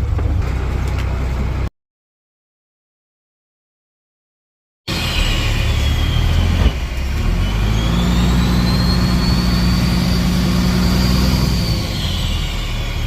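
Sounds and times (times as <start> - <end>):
engine running: 0.0 - 1.7, 4.9 - 13.0.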